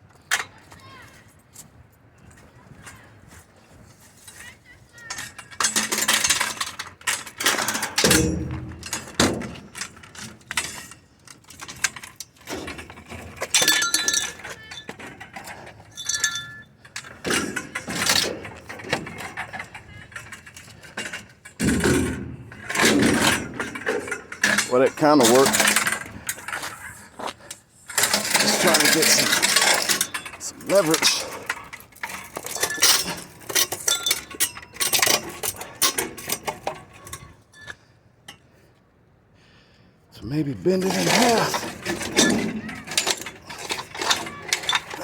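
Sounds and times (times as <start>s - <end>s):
sheet metal crinkling and clanking: 4.0s - 37.7s, 40.6s - 45.0s.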